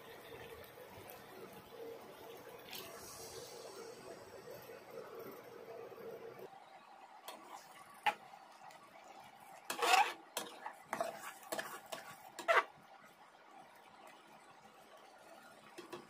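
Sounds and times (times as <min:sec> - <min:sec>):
utensil scraping cooking pot: 0:09.6 - 0:12.7.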